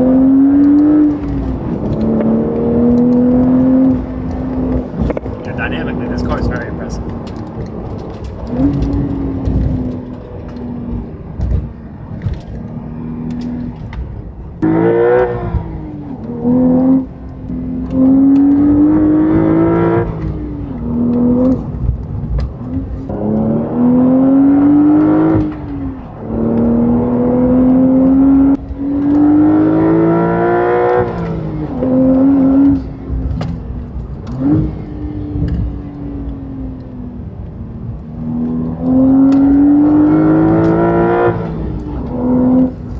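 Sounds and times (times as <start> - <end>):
car engine accelerating through gears: 0.0 - 42.9.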